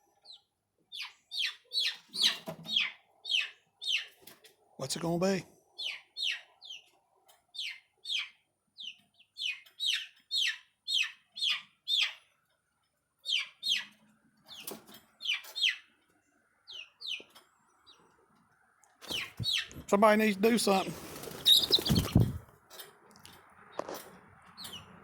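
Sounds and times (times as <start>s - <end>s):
chicks peeping: 0.2s - 4.4s, 5.8s - 12.2s, 13.3s - 15.9s, 19.0s - 22.4s.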